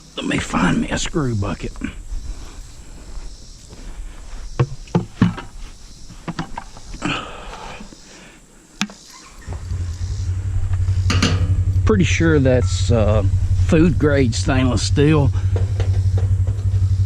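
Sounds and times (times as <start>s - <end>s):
objects knocking and clattering: 4.6s - 5.5s, 6.2s - 6.9s
low mechanical hum: 9.2s - 17.0s.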